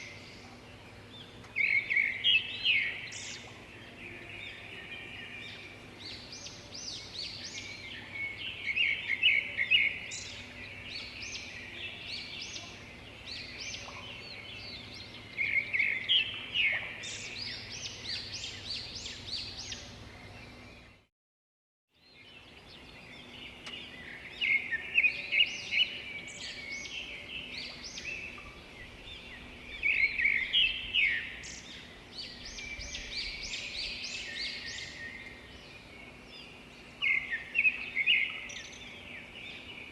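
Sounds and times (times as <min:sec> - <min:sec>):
birds chirping and trilling: 0:00.0 - 0:21.1, 0:22.0 - 0:39.9.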